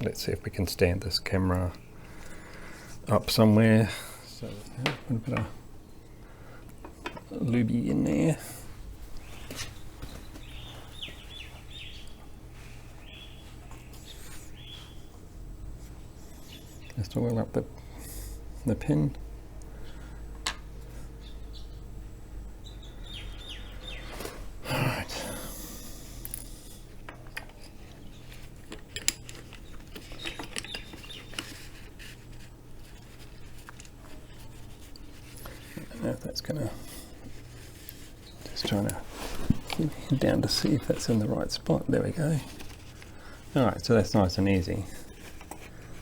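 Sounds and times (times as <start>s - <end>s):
steady low hum: 0.0s - 46.0s
bird chirping: 9.2s - 15.2s, 21.1s - 25.2s, 29.4s - 31.6s
light metal clicks and scraping: 26.2s - 35.9s.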